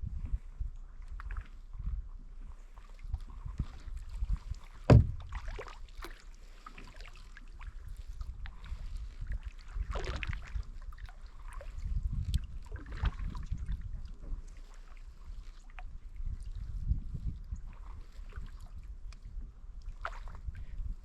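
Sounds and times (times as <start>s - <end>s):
wind on microphone: 0.0s - 5.7s, 7.6s - 21.0s
paddle splashing through water: 2.4s - 16.8s, 17.6s - 21.0s
sharp knock: 4.9s - 5.2s
handling rumble: 4.9s - 5.4s.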